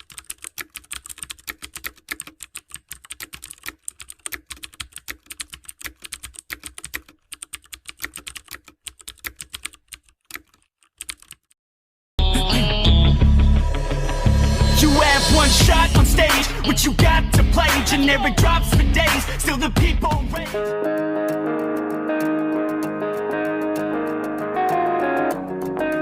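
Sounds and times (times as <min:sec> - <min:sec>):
fast typing on keyboard: 0:00.0 - 0:11.6, 0:21.0 - 0:26.0.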